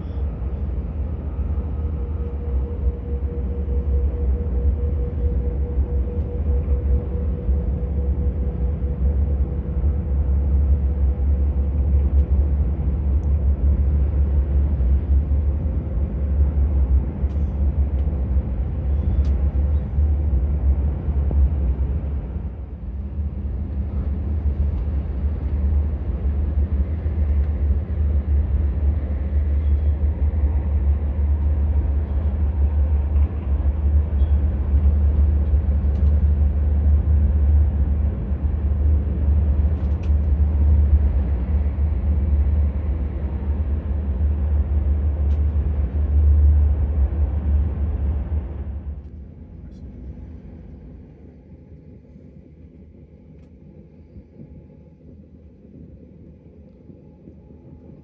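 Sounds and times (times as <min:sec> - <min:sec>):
electric train rumble: 0:00.0 - 0:58.0.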